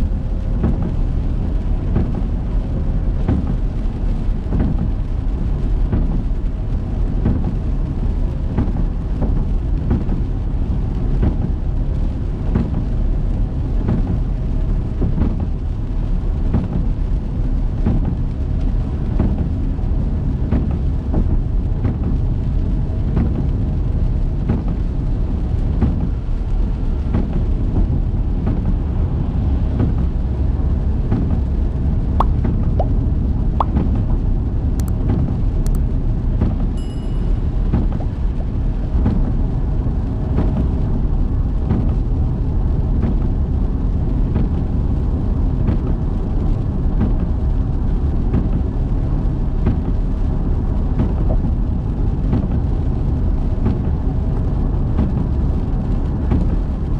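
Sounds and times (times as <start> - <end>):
car road and engine noise: 0.0 - 56.9.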